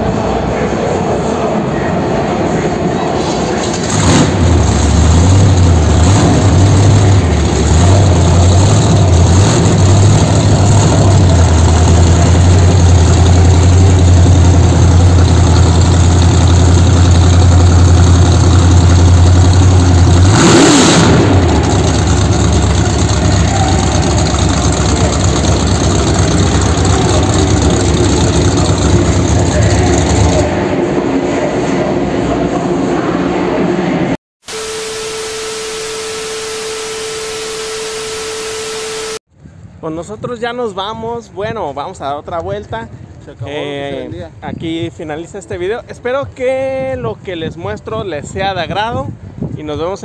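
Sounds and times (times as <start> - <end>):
engine idling and revving: 3.2 - 31.0.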